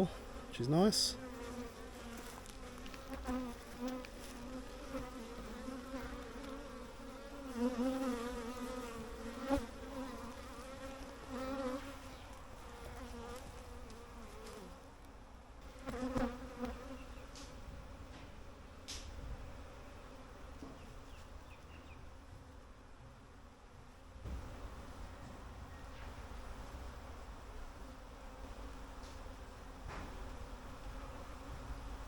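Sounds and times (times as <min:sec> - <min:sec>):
bees buzzing: 0:00.0 - 0:14.9, 0:15.6 - 0:17.6.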